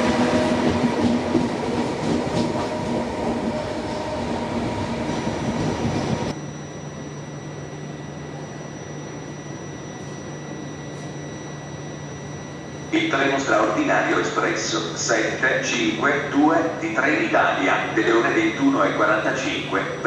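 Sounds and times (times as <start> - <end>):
train rumbling on tracks: 0.0 - 6.4.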